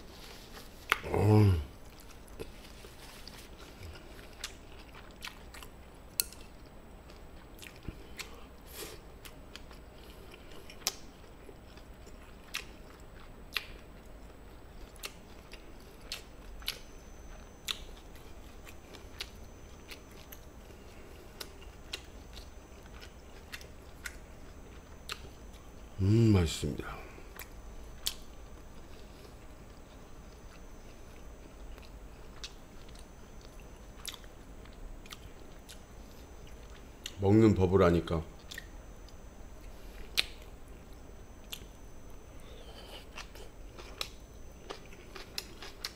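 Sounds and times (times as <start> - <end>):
chewing mouth clicks and smacks: 9.2 - 20.4, 27.3 - 28.3, 30.5 - 35.8, 40.0 - 40.5.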